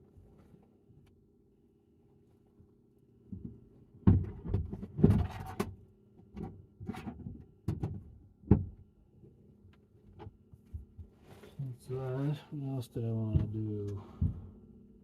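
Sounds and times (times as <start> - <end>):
steady low hum: 0.0 - 15.0
gear knocks and thumps: 3.3 - 8.8.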